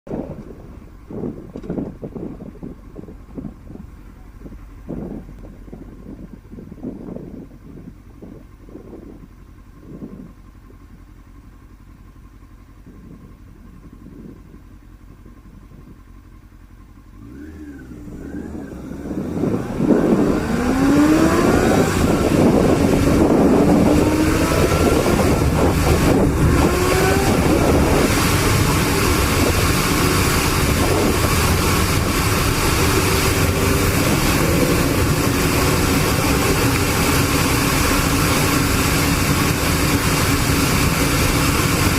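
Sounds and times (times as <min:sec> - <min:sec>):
rushing wind: 0:00.1 - 0:11.2, 0:17.2 - 0:41.9
motorcycle engine revving: 0:16.5 - 0:41.9.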